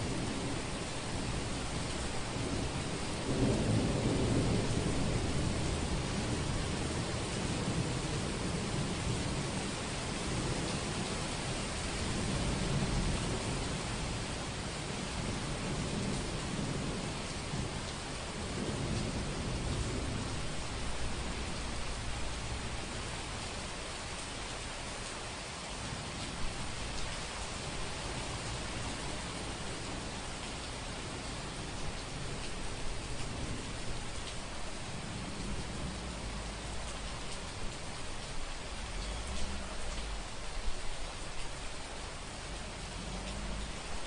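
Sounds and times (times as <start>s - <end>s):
heavy rain hissing: 0.0s - 44.0s
low rumble: 42.3s - 44.0s.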